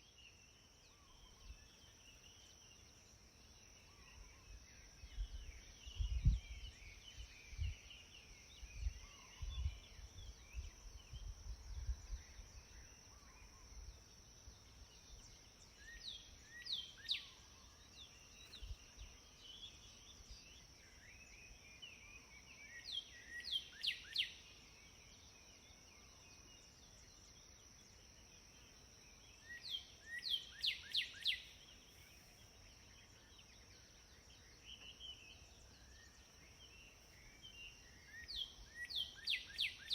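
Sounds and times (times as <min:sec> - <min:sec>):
soft bird chirps: 0:00.0 - 0:39.9
wind rumble on microphone: 0:05.0 - 0:12.8
songbird whistled notes: 0:21.2 - 0:24.6, 0:29.4 - 0:32.1, 0:36.8 - 0:39.9.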